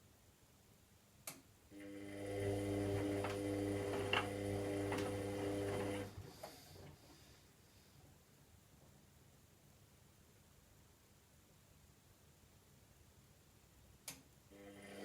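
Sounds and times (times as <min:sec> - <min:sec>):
washing machine motor humming: 0:01.8 - 0:06.9, 0:14.5 - 0:15.0.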